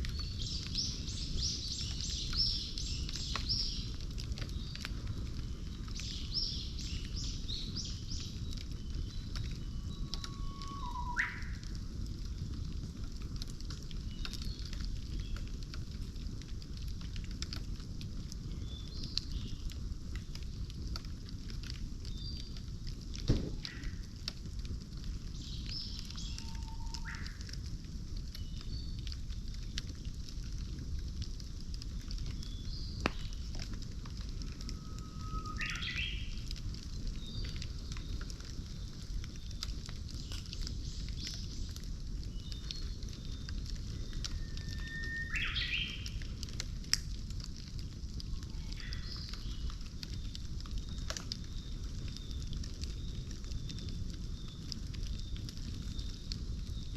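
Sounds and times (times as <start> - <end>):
bamboo crackling and popping: 0.0 - 56.9
campfire low rush: 0.0 - 56.9
low rumble of fire: 0.0 - 56.9
birds calling: 35.0 - 36.4.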